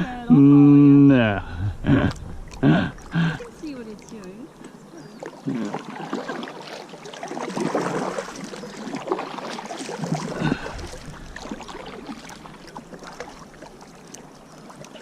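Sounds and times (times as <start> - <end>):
paddle splashes in water: 2.1 - 15.0.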